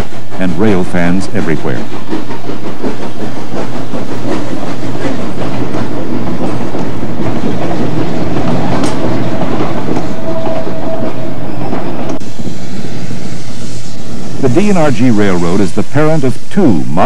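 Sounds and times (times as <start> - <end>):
train wheels clicking over rail joints: 0.0 - 12.2.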